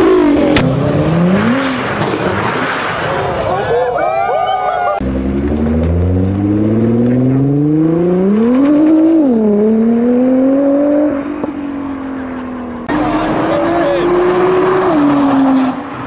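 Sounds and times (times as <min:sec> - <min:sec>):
car engine accelerating hard: 0:05.0 - 0:11.5, 0:12.8 - 0:16.0.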